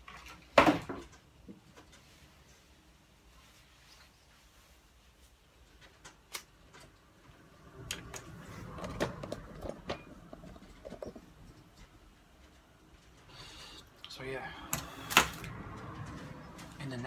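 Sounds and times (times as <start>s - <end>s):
clattering and rustling: 8.0s - 13.3s.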